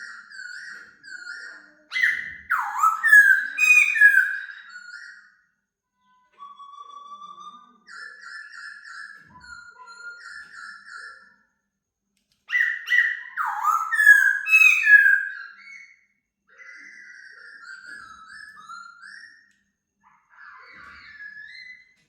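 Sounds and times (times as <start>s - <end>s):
songbird whistling: 0.5s - 5.2s, 12.5s - 16.0s.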